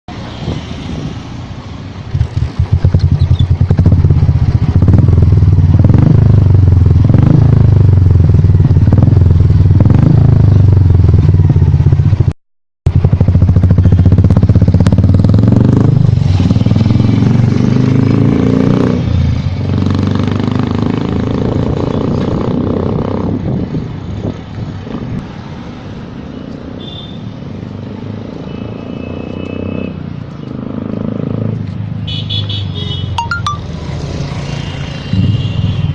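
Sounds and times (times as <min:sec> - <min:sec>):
motorcycle engine accelerating: 0:02.1 - 0:23.5.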